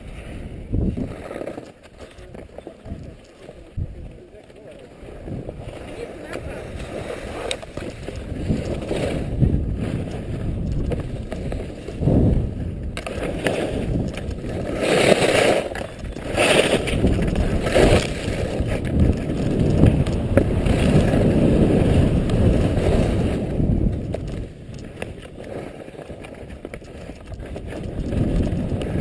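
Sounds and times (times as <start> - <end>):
skis scraping over snow: 0.0 - 29.0
wind rumbling on microphone: 0.0 - 29.0.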